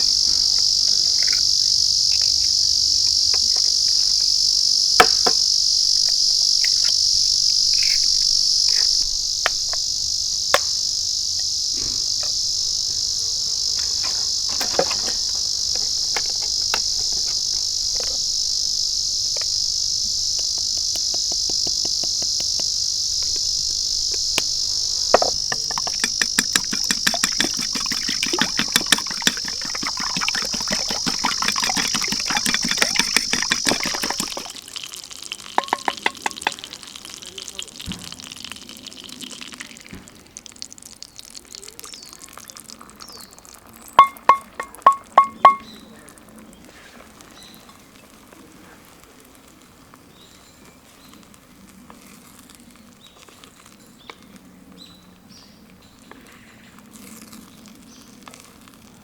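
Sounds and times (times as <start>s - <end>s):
crickets chirring: 0.0s - 39.9s, 41.1s - 46.6s
sharp clicks and knocks: 20.3s - 23.4s, 25.2s - 34.6s, 35.6s - 36.7s.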